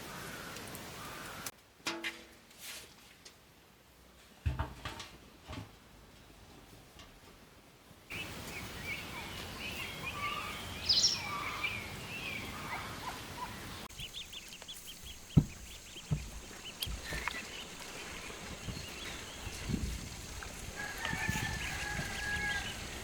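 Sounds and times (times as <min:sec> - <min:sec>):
small birds chirping: 0:08.1 - 0:23.0
dull thumps: 0:13.9 - 0:22.6.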